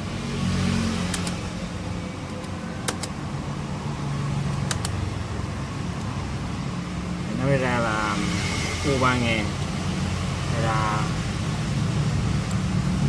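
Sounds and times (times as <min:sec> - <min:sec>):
computer mouse clicks: 0:01.1 - 0:01.4, 0:04.6 - 0:05.0.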